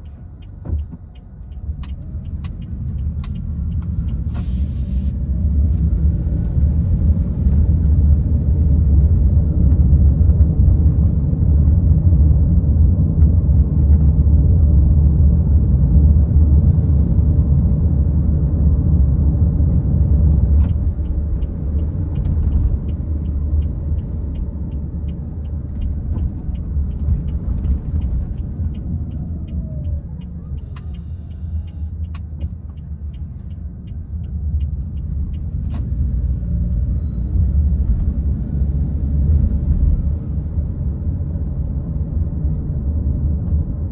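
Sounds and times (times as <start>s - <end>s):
car road and engine rumble: 0.0s - 43.9s
regular ticking: 31.6s - 35.6s.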